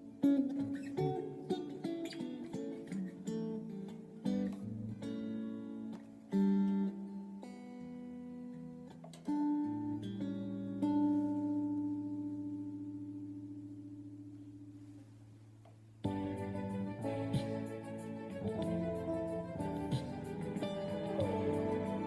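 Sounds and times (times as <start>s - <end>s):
acoustic guitar chords: 0.0s - 22.0s.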